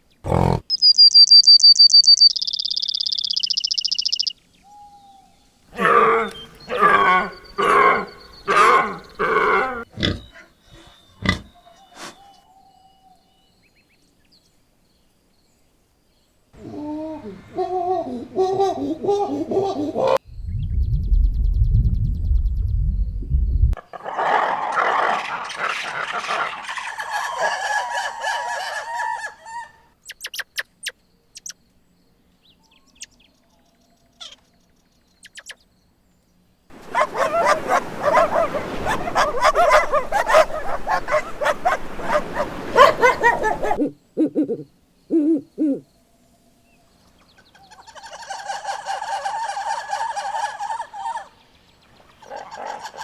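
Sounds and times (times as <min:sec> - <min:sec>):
animal calls: 0:05.7 - 0:12.6, 0:23.8 - 0:29.9, 0:36.7 - 0:45.9, 0:47.4 - 0:51.4, 0:52.2 - 0:53.0.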